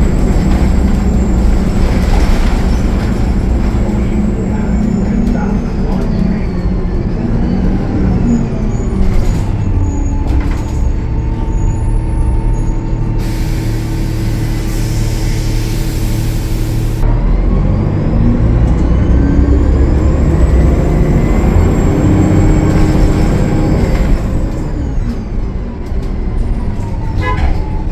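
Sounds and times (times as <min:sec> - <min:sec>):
diesel bus engine running: 0:00.0 - 0:27.9
engine whine: 0:00.0 - 0:27.9
air brake hissing: 0:13.2 - 0:17.0.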